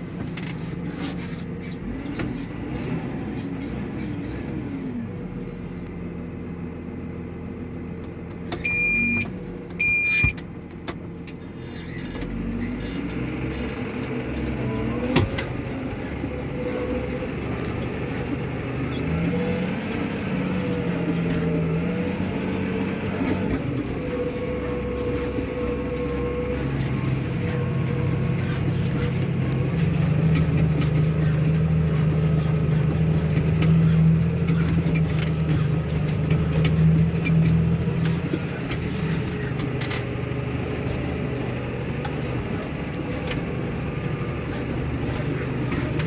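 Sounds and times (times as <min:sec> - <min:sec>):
tractor engine running: 0:00.0 - 0:46.0
short high electronic beeps: 0:08.7 - 0:09.2, 0:09.8 - 0:10.3.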